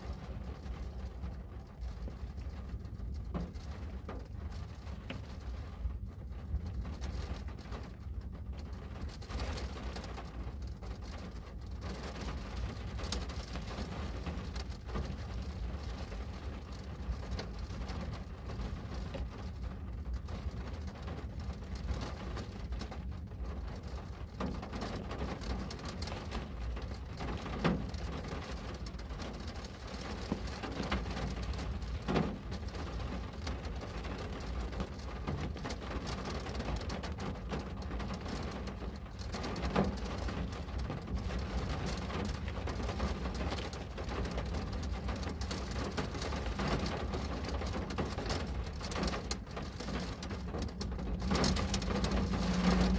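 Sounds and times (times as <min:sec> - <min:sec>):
rain on a window: 0:00.0 - 0:52.9
low rumble: 0:48.5 - 0:52.9.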